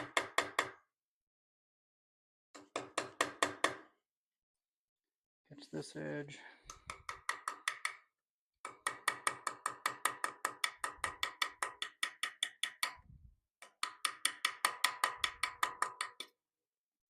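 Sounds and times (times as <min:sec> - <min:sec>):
hammer tapping steel chisel: 0:06.7 - 0:16.4.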